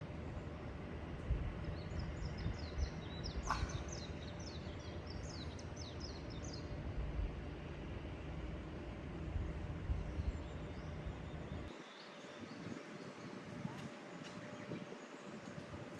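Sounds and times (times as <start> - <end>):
low outdoor rumble: 0.0 - 15.9
songbird chirping: 1.6 - 6.8.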